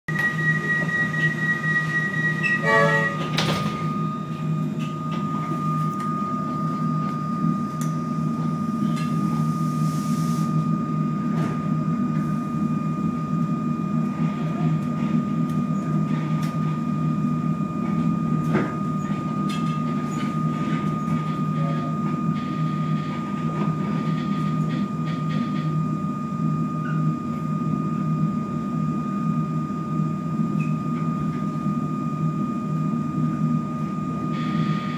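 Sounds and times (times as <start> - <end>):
short beeps: 0.1 - 7.4
high whine of train motor: 0.1 - 34.9
train low rumble: 0.1 - 34.9.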